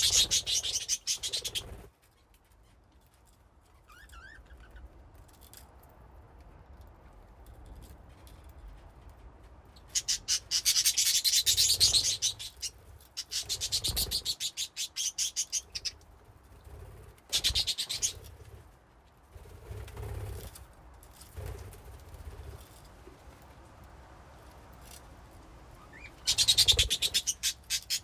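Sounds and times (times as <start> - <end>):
budgies chattering: 0.0 - 1.8, 9.9 - 16.0, 17.3 - 18.2, 25.8 - 28.0.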